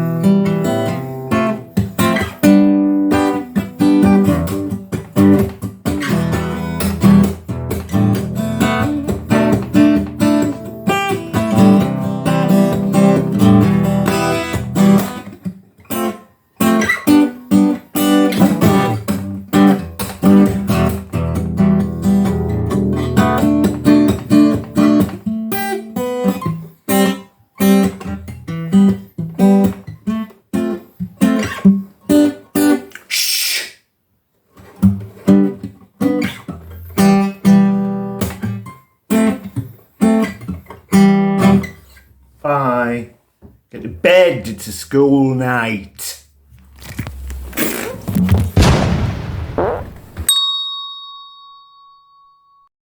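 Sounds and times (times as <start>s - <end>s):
acoustic guitar strumming: 0.0s - 31.6s, 35.3s - 42.0s
short hiss: 32.9s - 33.8s.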